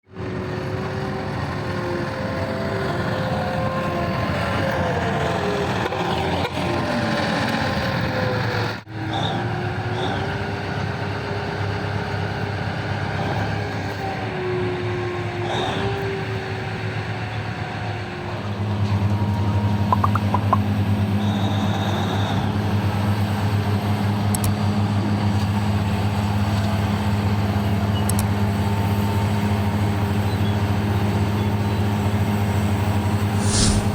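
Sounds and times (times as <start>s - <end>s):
low engine drone: 18.7s - 21.3s, 33.2s - 33.9s
hydraulics working: 33.2s - 33.9s.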